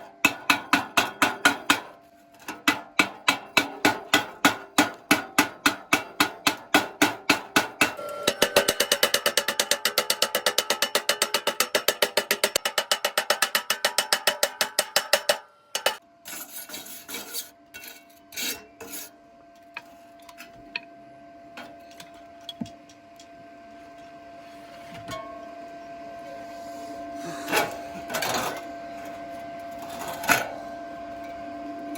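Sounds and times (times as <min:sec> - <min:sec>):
scraping on steel tube: 0:15.7 - 0:19.2.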